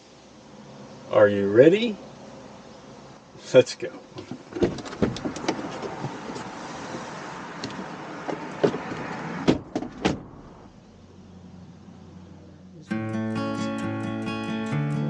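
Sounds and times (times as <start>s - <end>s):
van engine rushing: 0.0s - 15.0s
van doors clunking: 4.1s - 10.8s.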